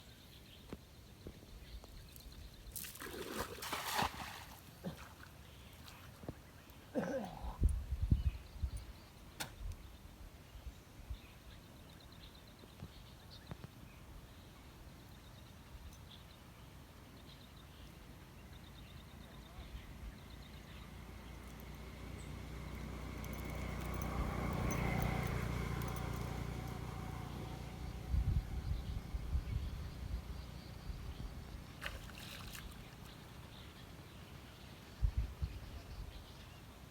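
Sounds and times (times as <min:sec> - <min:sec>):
water splashing and sloshing: 0:02.2 - 0:06.4, 0:31.8 - 0:33.5
motor passing by: 0:20.8 - 0:30.9.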